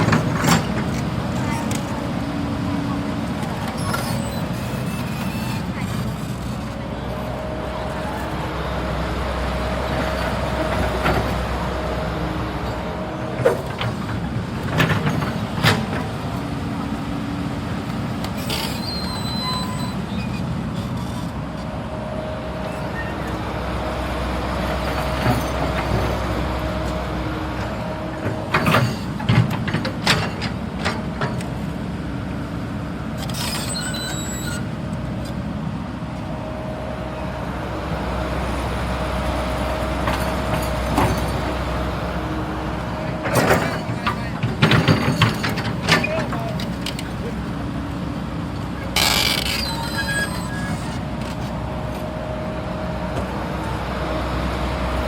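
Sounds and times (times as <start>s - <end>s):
excavator engine whine: 0.0s - 55.0s
brief high squeals: 18.4s - 20.4s, 33.3s - 34.7s, 49.0s - 51.0s.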